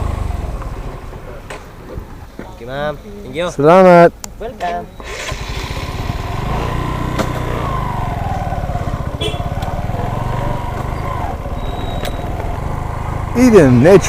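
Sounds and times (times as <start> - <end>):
vehicle engine running: 0.0 - 1.4, 5.0 - 14.0.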